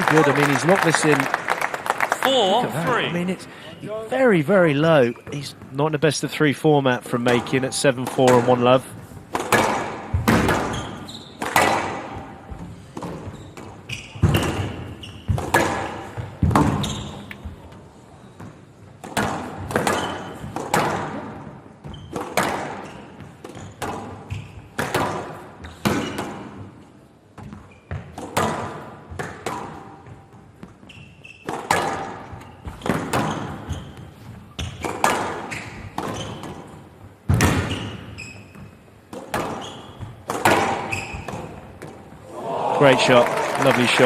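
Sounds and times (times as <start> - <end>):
squash ball hitting rackets and walls: 7.3 - 42.2
shoe squeaks on floor: 10.6 - 17.7, 19.8 - 20.6, 21.8 - 24.8, 27.4 - 28.2, 30.6 - 31.6, 32.3 - 36.6, 37.5 - 41.6.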